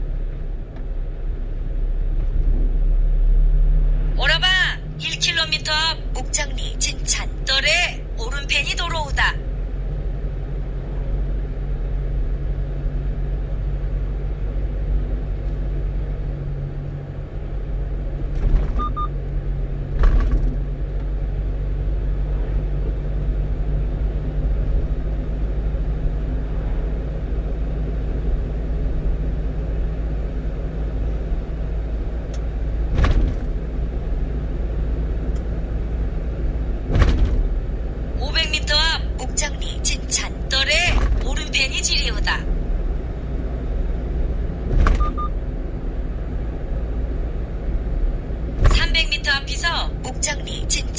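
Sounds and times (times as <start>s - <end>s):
truck engine and road rumble: 0.0s - 50.9s
short sharp thumps: 32.9s - 34.3s, 36.7s - 45.4s, 48.4s - 49.3s.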